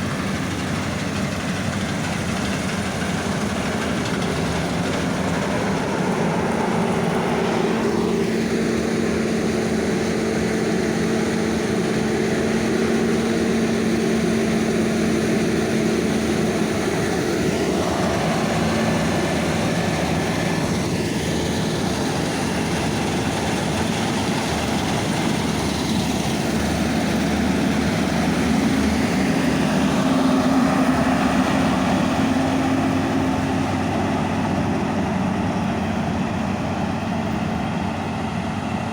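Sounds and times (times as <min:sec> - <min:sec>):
heavy diesel engine droning: 0:00.0 - 0:38.9.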